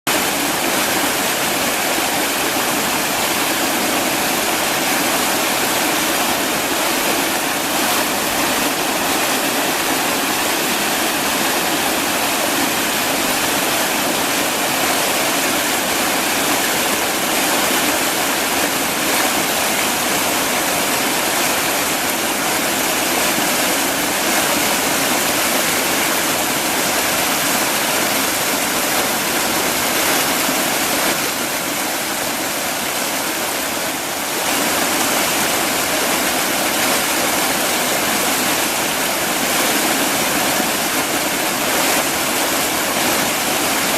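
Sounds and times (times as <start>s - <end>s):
small waterfall rushing: 0.0s - 43.9s.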